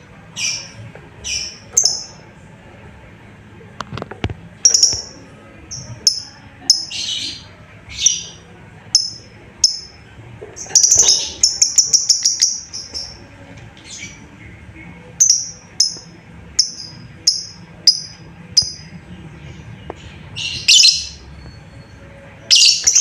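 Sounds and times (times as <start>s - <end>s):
lovebird shrill chirping: 10.7s - 13.1s, 20.5s - 21.2s.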